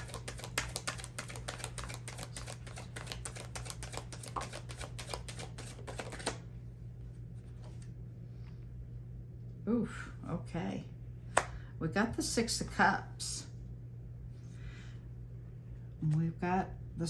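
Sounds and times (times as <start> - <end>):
cards being shuffled: 0.0 - 6.4
low steady hum: 0.0 - 17.0.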